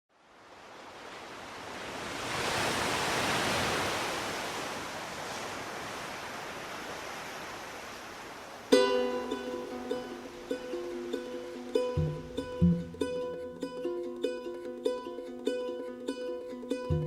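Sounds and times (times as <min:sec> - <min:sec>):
soft rush of noise: 0:00.2 - 0:13.8
plucked string instrument: 0:08.7 - 0:17.0.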